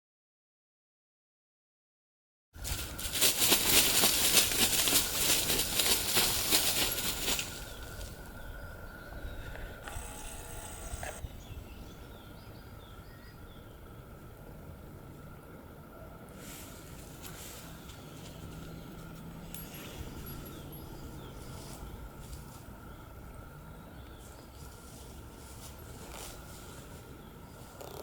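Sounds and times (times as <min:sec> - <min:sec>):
wings flapping flutter: 0:02.6 - 0:08.2.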